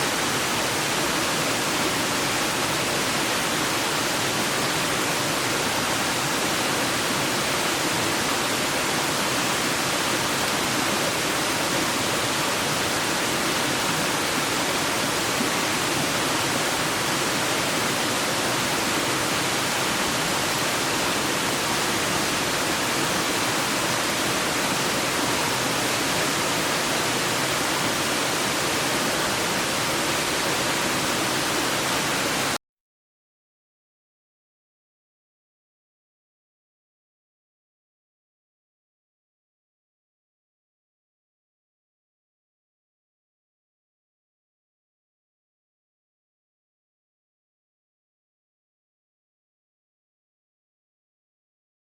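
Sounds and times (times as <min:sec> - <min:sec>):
stream rushing: 0:00.0 - 0:32.6.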